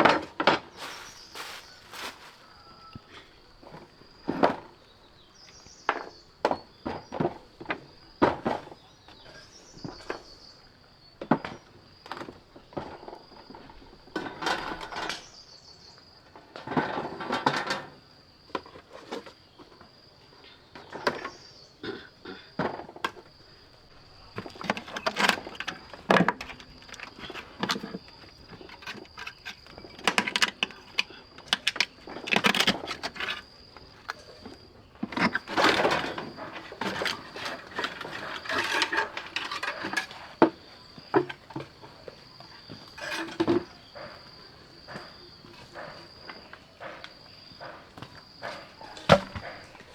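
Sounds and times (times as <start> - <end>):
high insect drone: 0.4 - 4.5, 23.2 - 49.9
wood being chopped: 49.0 - 49.6.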